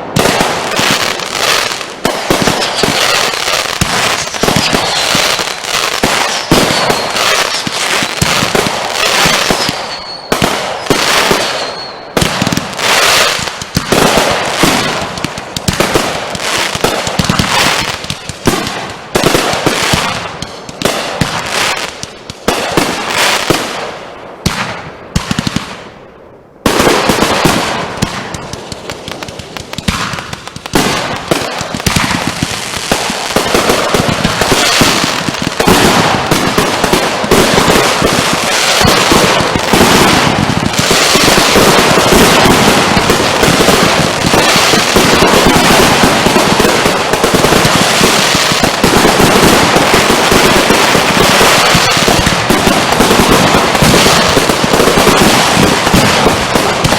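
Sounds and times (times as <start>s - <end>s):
fireworks bangs and crackling: 0.0s - 56.9s.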